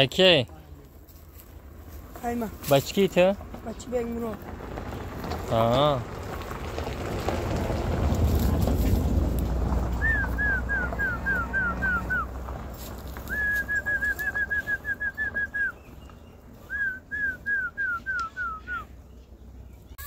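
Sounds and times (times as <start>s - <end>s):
low rumble: 3.3s - 18.0s
small bird singing: 13.3s - 20.0s.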